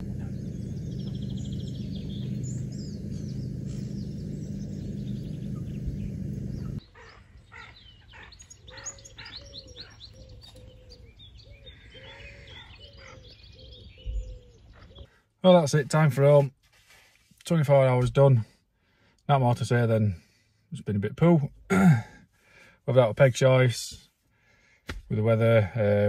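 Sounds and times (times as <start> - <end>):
small birds singing and chirping: 0.0 - 16.0.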